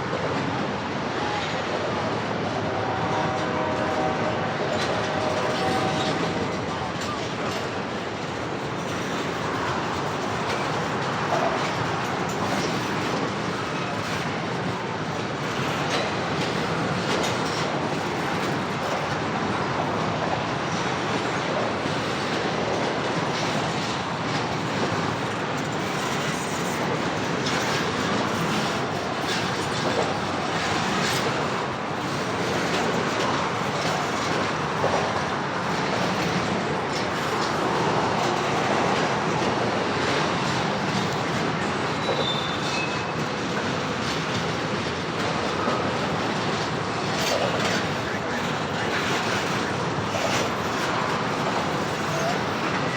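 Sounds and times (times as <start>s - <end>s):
freight train cars rumbling: 0.0s - 52.9s
high wheel squeal: 42.0s - 43.2s.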